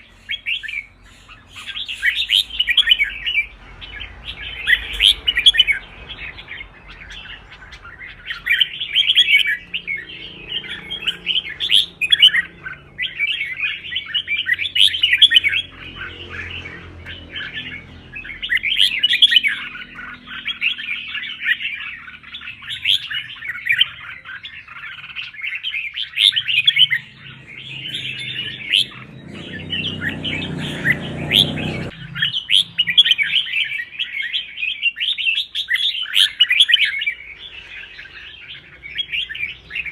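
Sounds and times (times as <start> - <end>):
bird chattering and warbling: 0.0 - 39.9
low rumble: 1.7 - 8.9.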